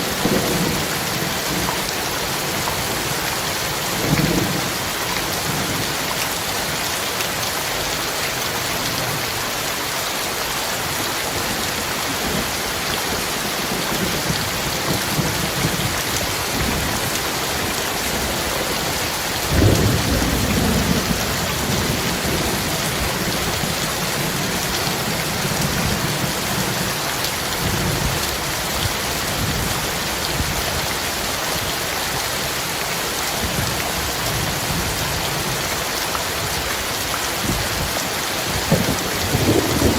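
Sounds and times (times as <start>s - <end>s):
heavy rain: 0.0s - 39.9s
distant thunder rumbling: 19.4s - 26.8s, 38.6s - 39.9s
thunderclap: 19.5s - 22.6s, 38.6s - 39.9s.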